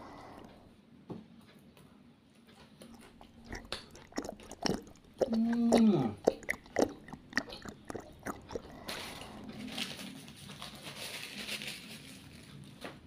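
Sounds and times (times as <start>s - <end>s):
wet mouth chewing clicks: 2.8s - 9.6s
crinkling rustle: 8.5s - 13.0s.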